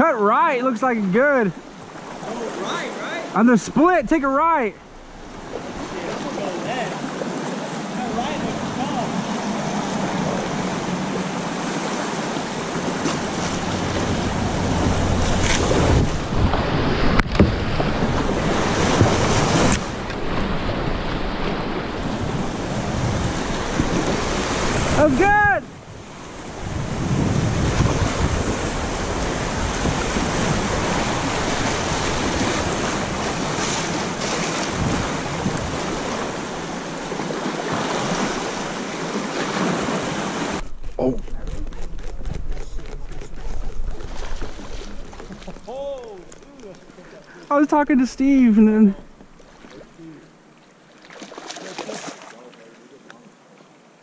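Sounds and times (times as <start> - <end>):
river water rushing: 0.0 - 41.0, 43.7 - 54.0
river water rushing through rapids: 4.9 - 17.1
wind buffeting microphone: 8.1 - 38.8, 39.6 - 47.0.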